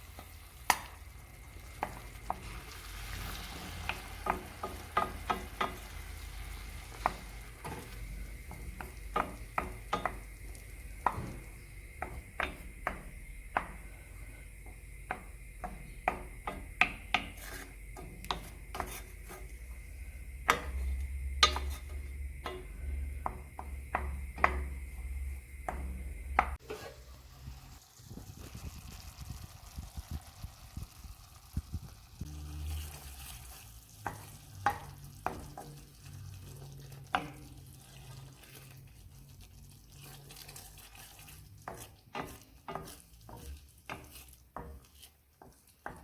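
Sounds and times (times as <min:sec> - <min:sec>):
faint sizzle: 0:00.0 - 0:46.0
utensil knocking against a pan: 0:03.8 - 0:26.9.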